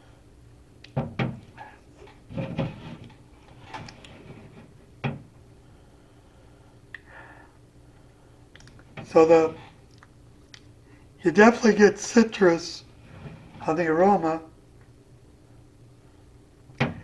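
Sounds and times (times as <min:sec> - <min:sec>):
short scraping or rustling: 0:12.9 - 0:13.9.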